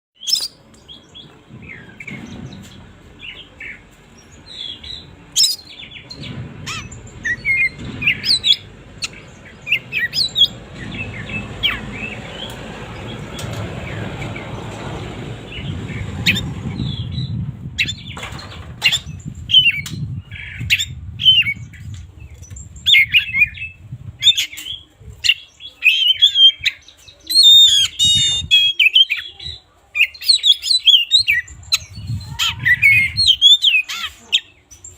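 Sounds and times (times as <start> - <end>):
songbird chirping and whistling: 0.2 - 12.6, 18.9 - 34.2
low rumble: 1.1 - 24.2.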